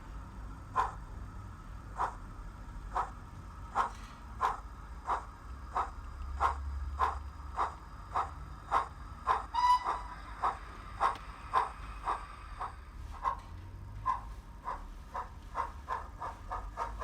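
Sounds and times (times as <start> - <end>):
steam locomotive chuffs from speaker: 2.9 - 13.4.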